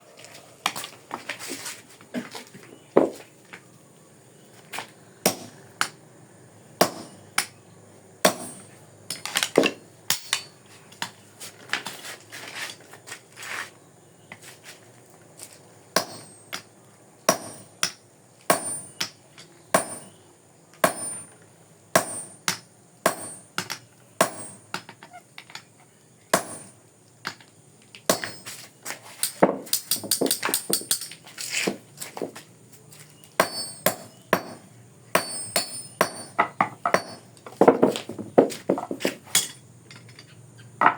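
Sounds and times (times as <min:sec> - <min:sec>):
hammer striking steel: 0:19.8 - 0:20.1, 0:22.0 - 0:24.7, 0:33.4 - 0:34.6, 0:35.2 - 0:37.3.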